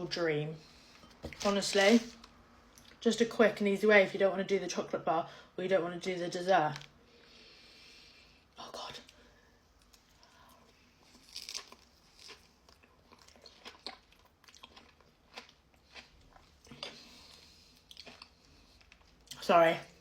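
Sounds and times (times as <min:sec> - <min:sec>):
chewing crunches: 0:11.0 - 0:19.4.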